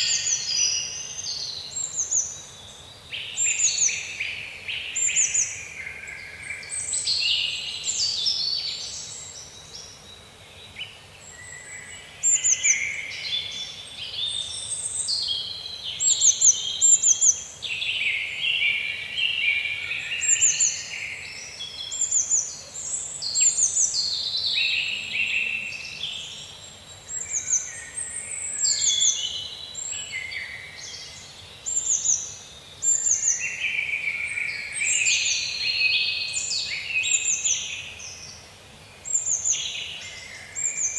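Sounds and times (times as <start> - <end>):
tropical birds singing: 0.0 - 40.9.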